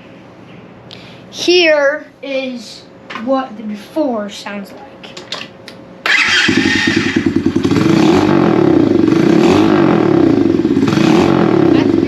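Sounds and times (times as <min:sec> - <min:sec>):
motorbike engine running: 0:06.1 - 0:12.0.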